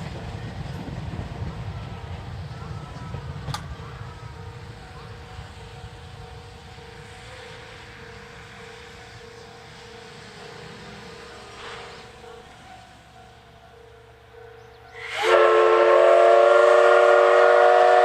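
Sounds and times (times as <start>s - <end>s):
steam train rumbling: 0.0s - 18.0s
short hiss: 11.4s - 12.2s.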